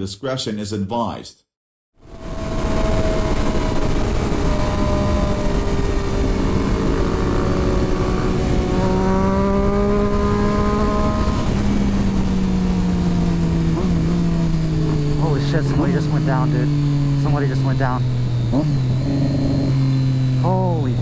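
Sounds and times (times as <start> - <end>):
wind rush on microphone: 2.0 - 15.9
motorcycle engine pulling: 2.1 - 21.0.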